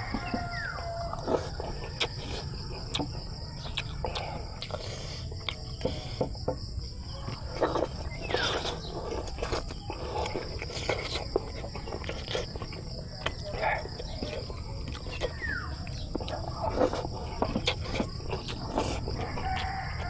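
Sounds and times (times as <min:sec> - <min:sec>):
chewing and mouth sounds: 0:00.0 - 0:20.0
insects chirping: 0:00.0 - 0:20.0.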